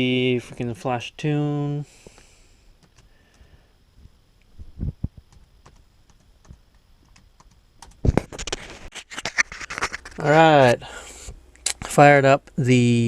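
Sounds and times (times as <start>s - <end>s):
laptop keyboard typing: 2.8s - 3.4s, 4.8s - 8.6s.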